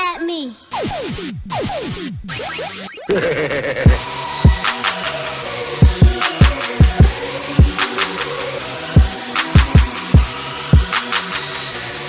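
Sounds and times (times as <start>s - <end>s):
hip hop beat: 0.6s - 12.0s
hi-hat ticks: 3.9s - 11.8s.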